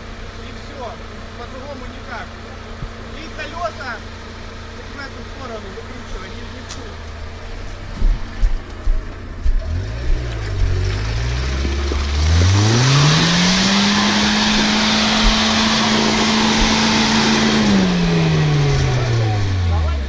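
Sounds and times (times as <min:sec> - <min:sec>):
off-road engine revving hard: 0:09.3 - 0:20.0.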